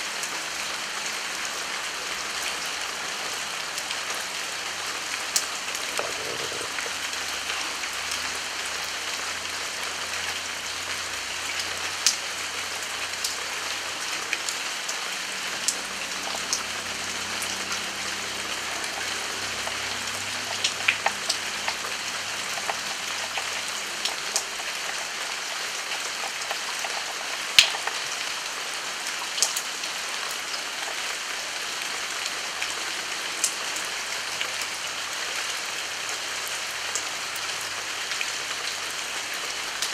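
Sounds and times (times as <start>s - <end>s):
steady rain hiss: 0.0s - 39.9s
raindrops ticking: 5.2s - 8.4s, 15.7s - 28.2s.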